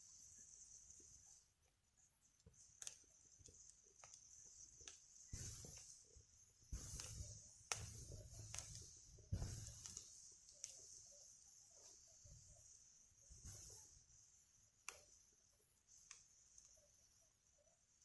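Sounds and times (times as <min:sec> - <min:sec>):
wood fire crackling: 0:02.8 - 0:11.0
fire popping: 0:06.7 - 0:10.8.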